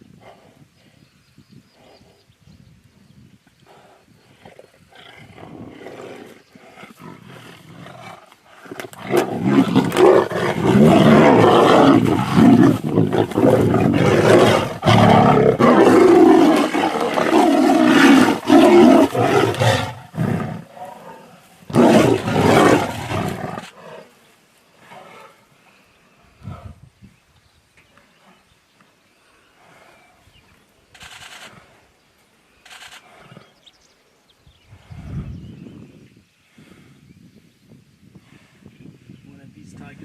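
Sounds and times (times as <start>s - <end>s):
tigers roaring and snarling: 3.8s - 24.2s.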